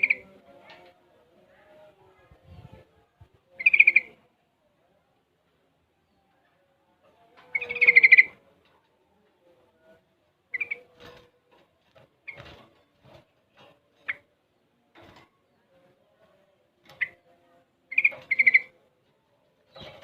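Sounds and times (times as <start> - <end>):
bird chirps: 3.5 - 4.1, 10.5 - 11.0, 17.9 - 18.8
bird singing warbled phrase: 3.6 - 4.2, 10.5 - 10.9.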